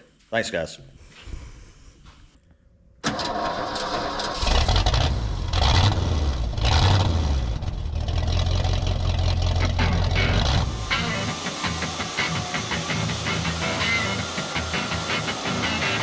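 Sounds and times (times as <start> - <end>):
engine cranking: 3.0 - 16.0
engine running with low rumble: 4.4 - 11.4.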